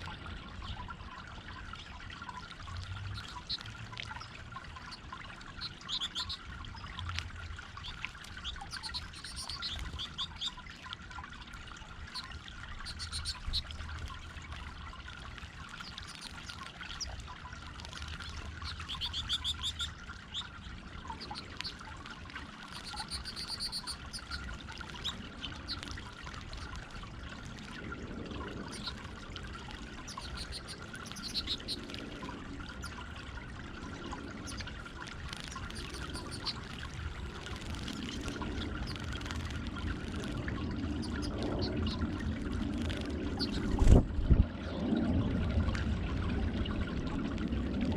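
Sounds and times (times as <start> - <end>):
water trickling over fountain: 0.0 - 47.9
small birds chirping: 3.1 - 7.0, 7.7 - 10.8, 12.0 - 14.2, 15.7 - 26.9, 28.6 - 33.0, 34.4 - 42.1, 42.8 - 44.0.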